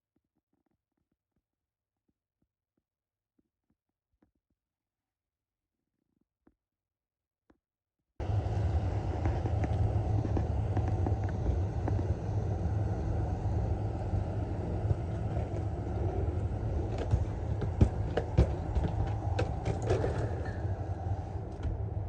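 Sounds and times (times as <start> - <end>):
moving vehicle rumble: 8.2 - 22.0.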